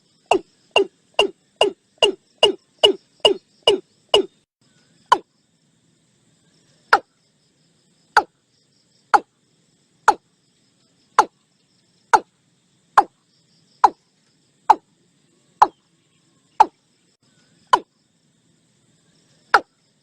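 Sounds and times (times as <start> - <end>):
faint insect buzz: 0.0 - 20.0
bird calling sharp notes: 0.2 - 4.4.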